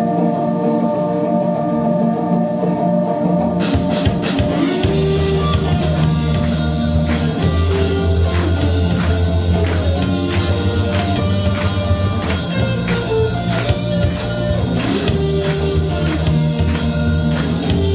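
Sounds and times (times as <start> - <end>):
rock band playing live: 0.0 - 17.9
drum kit beat: 3.6 - 17.9.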